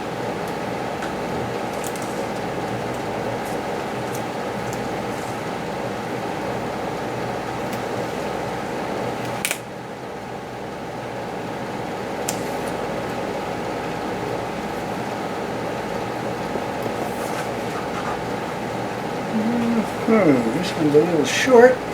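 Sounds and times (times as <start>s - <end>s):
fan whirring: 0.0s - 21.9s.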